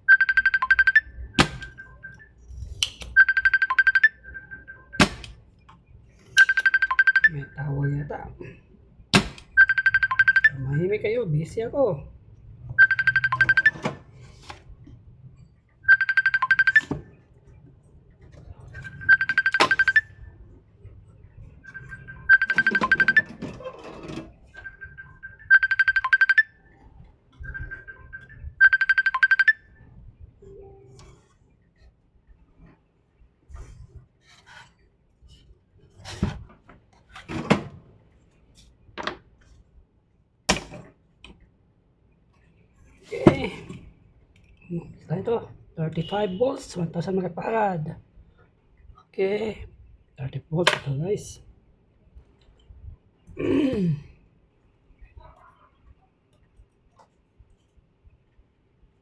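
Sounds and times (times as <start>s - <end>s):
phone ringing: 0.0s - 2.3s, 3.1s - 5.4s, 6.3s - 8.4s, 9.2s - 11.0s, 12.8s - 14.2s, 15.8s - 17.3s, 18.4s - 20.4s, 21.5s - 29.8s
tools knocking and clicking: 1.4s - 1.8s, 2.8s - 3.2s, 5.0s - 5.4s, 6.3s - 6.8s, 9.2s - 9.6s, 19.3s - 20.0s, 40.5s - 41.4s.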